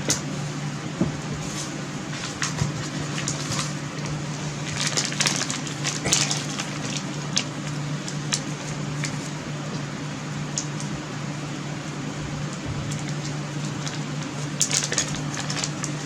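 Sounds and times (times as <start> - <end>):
steady low hum: 0.0 - 16.0
plastic packaging crinkling: 1.5 - 9.4, 12.4 - 16.0.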